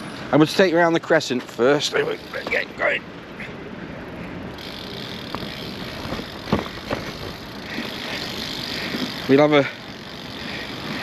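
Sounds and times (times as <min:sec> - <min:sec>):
bicycle tyre and wind noise: 0:00.0 - 0:11.0.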